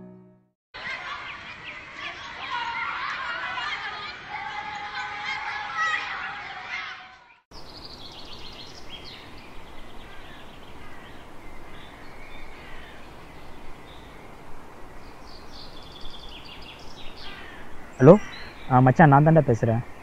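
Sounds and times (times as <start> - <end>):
children's voices: 0.8 - 7.3
birds chirping: 0.8 - 20.0
steady outdoor hiss: 7.5 - 20.0.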